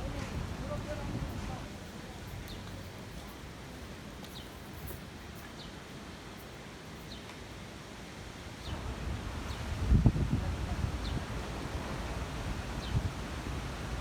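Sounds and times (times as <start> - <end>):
wind buffeting microphone: 0.0 - 2.6, 8.7 - 14.0
wind rustling leaves: 0.0 - 14.0.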